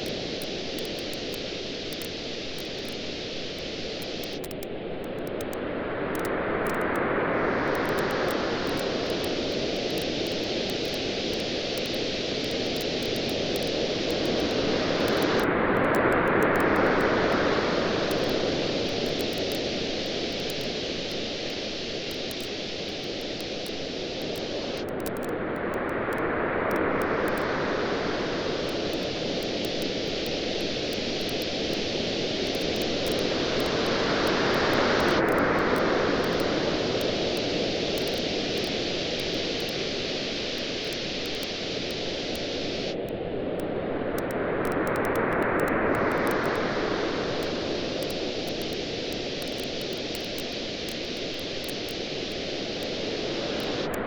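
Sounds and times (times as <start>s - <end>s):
campfire crackling: 0.0s - 5.6s, 7.7s - 15.5s, 16.3s - 25.2s, 26.8s - 43.0s
ocean waves washing on beach: 0.0s - 54.0s.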